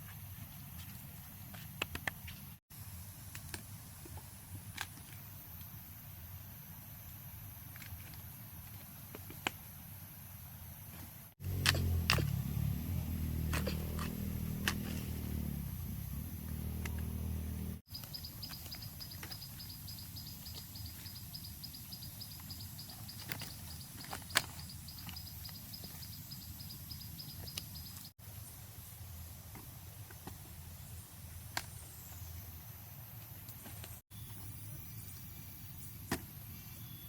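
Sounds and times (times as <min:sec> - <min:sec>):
low rumble: 0:11.4 - 0:17.8.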